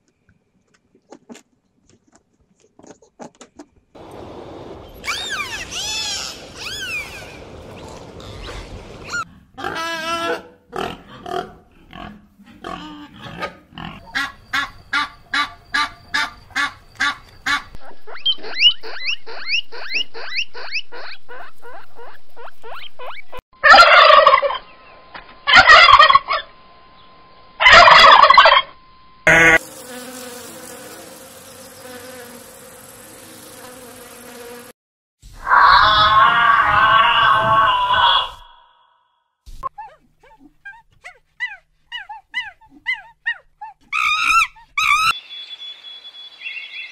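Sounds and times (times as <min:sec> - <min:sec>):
guinea pigs squeaking: 0:13.3 - 0:23.4, 0:39.6 - 0:45.2
fowl calls: 0:14.0 - 0:17.8, 0:22.6 - 0:24.6, 0:25.5 - 0:26.5, 0:27.6 - 0:28.7.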